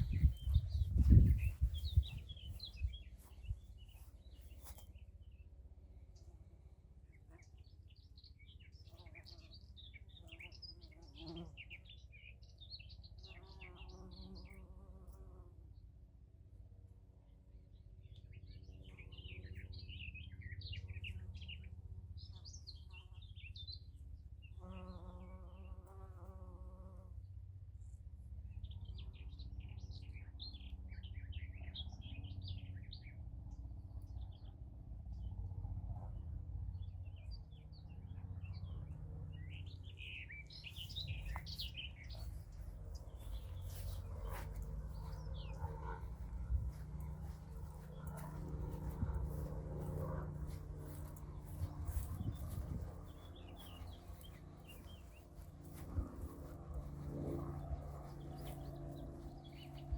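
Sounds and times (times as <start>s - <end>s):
low rumble: 0.0s - 4.7s, 35.3s - 59.9s
pitched hum with overtones: 0.0s - 4.9s, 35.5s - 59.9s
songbirds chirping: 0.0s - 59.9s.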